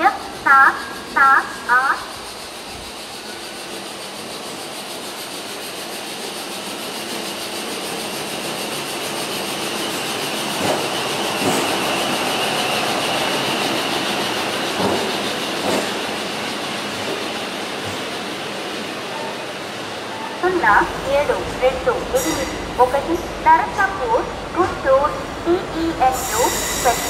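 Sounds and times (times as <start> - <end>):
train rumbling: 0.0 - 27.0
thin steady squeal: 26.1 - 27.0.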